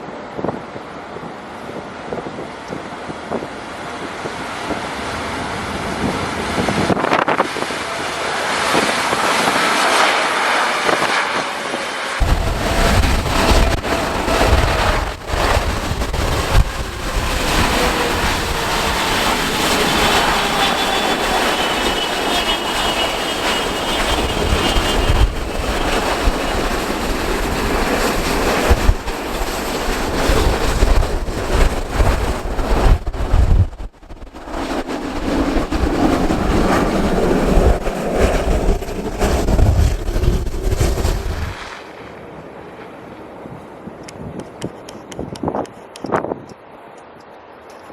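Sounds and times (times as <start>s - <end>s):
wind buffeting microphone: 0.0s - 41.7s, 43.2s - 46.6s
engine whine: 0.0s - 42.9s
jet engines roaring: 0.0s - 47.9s.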